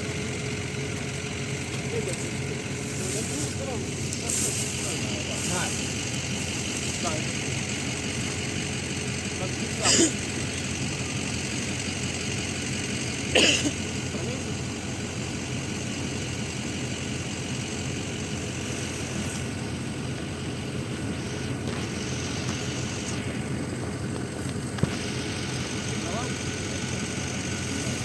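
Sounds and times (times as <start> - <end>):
vehicle engine idling: 0.0 - 28.0.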